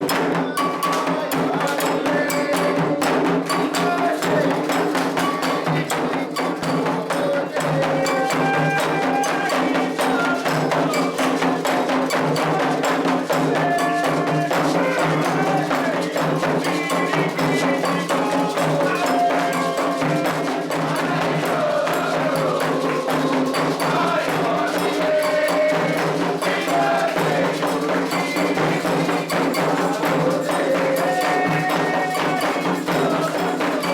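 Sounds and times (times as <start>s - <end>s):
hand drums: 0.0s - 33.9s
voices singing: 0.0s - 33.9s.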